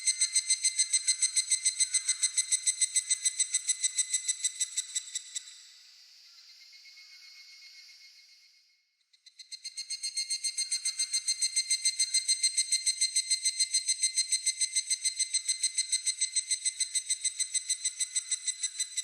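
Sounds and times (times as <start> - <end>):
cicada ringing trill: 0.0 - 5.4.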